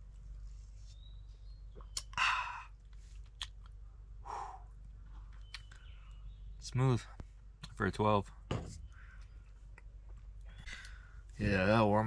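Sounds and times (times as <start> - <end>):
breathy exhale: 2.2 - 2.8, 4.2 - 4.8.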